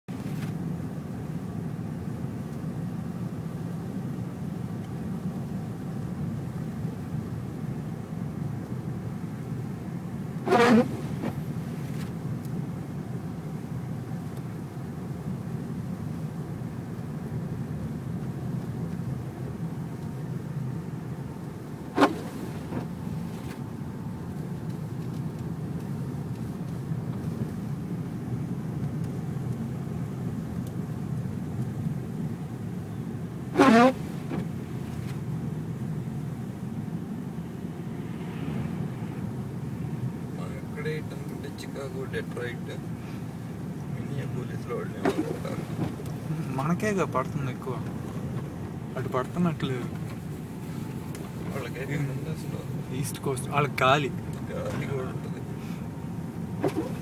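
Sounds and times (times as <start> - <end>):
car interior engine rumble: 0.0 - 57.0
tyre noise on snow: 10.4 - 12.2, 21.9 - 23.6, 33.5 - 35.2.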